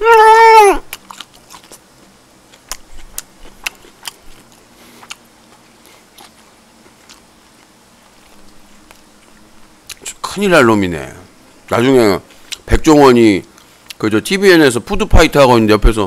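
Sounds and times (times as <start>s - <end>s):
person chewing crunchy food: 0.8s - 10.2s.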